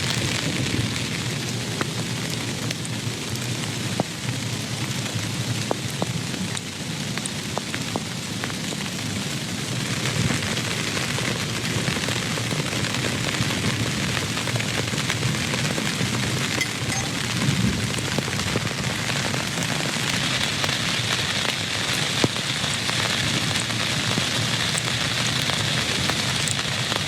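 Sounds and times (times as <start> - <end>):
steady rain: 0.0 - 27.0
drops ticking: 12.1 - 27.0.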